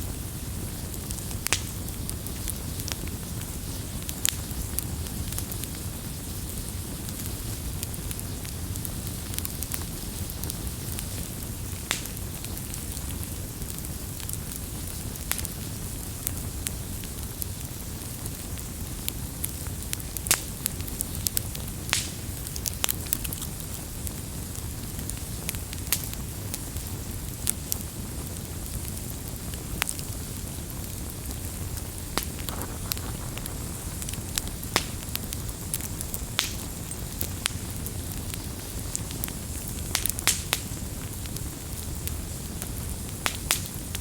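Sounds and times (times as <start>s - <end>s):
campfire crackling: 0.0s - 44.0s.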